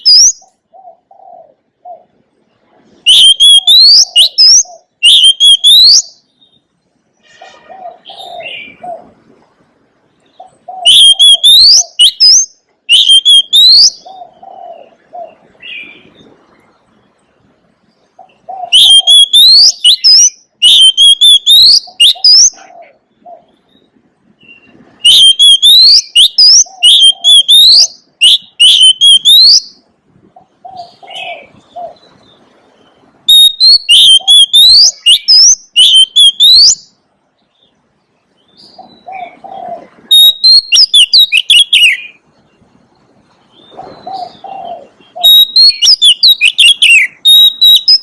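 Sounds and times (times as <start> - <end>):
bird singing whistled notes: 0.0 - 1.1, 3.0 - 6.8, 10.4 - 16.2, 18.2 - 22.7, 23.4 - 29.9, 30.6 - 37.8, 38.4 - 42.2, 43.5 - 48.0.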